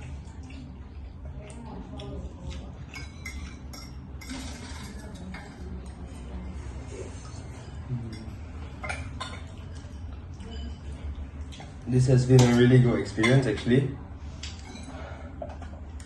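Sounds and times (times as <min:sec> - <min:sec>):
cutlery clinking against dishes: 0:02.4 - 0:06.3, 0:07.2 - 0:13.8, 0:14.4 - 0:15.8.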